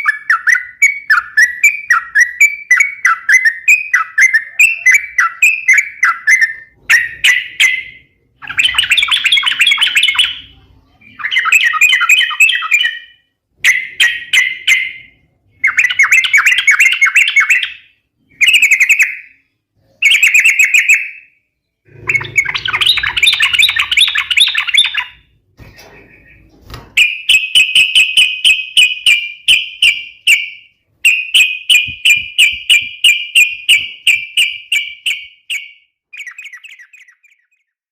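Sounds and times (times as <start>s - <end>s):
bird singing bubbly chattering: 0.0s - 13.3s, 21.9s - 25.4s, 36.2s - 37.8s.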